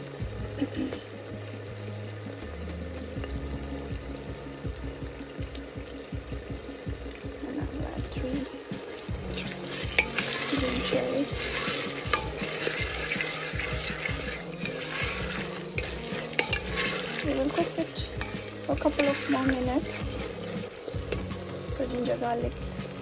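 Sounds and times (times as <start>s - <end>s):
vegetables sizzling: 0.0s - 23.0s
spatula scraping and clicking pot: 9.0s - 21.5s.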